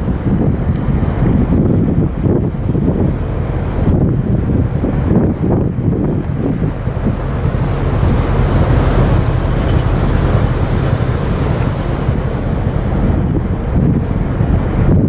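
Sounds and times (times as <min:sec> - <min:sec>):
low rush of water: 0:00.0 - 0:15.0
ship running: 0:00.0 - 0:15.0
wind buffeting microphone: 0:00.0 - 0:15.0.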